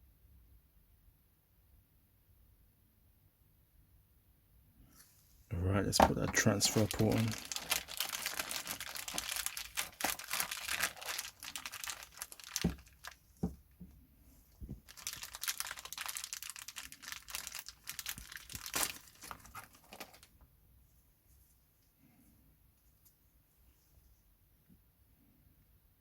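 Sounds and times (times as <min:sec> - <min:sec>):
crinkling rustling handling noise: 0:05.6 - 0:20.4.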